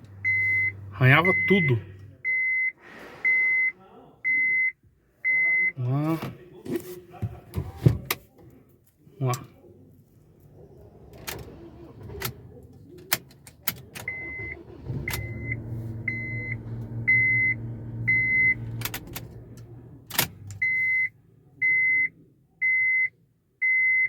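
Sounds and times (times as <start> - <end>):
car engine running: 0.0 - 2.2, 10.2 - 20.7
car warning chime beeping: 0.2 - 5.9, 14.0 - 19.0, 20.6 - 24.0.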